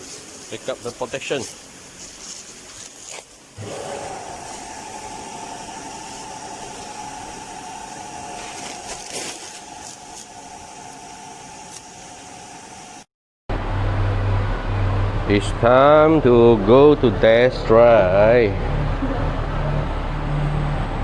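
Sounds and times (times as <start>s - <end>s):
hiss: 0.0s - 13.1s
motor whine: 0.0s - 21.0s.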